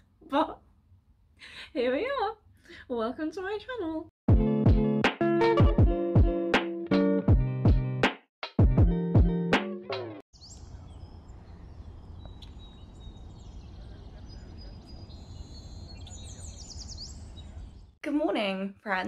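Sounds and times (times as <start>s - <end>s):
plucked guitar music: 4.4s - 8.0s, 8.7s - 10.2s
faint bird chirps: 10.4s - 18.0s.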